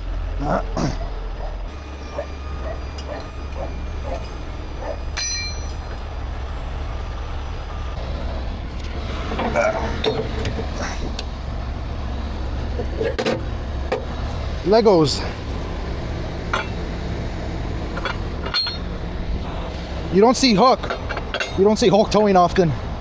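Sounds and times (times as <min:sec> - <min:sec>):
truck engine idling: 0:00.0 - 0:23.0
metallic clink: 0:05.2 - 0:06.0, 0:16.5 - 0:16.8, 0:18.0 - 0:19.0.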